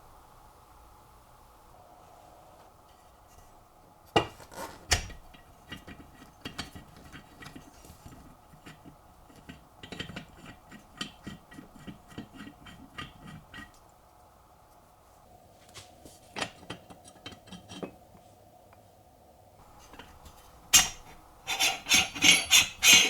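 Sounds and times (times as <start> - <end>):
small metallic clicks and knocks: 4.2 - 13.8, 16.4 - 18.0.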